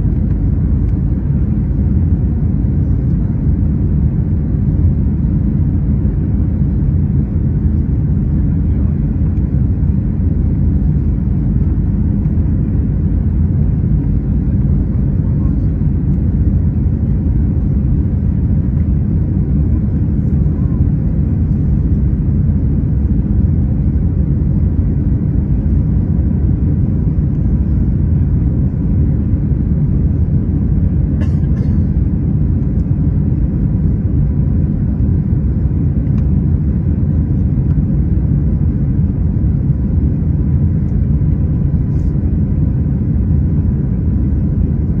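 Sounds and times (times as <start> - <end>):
loud low rumble: 0.0 - 45.0.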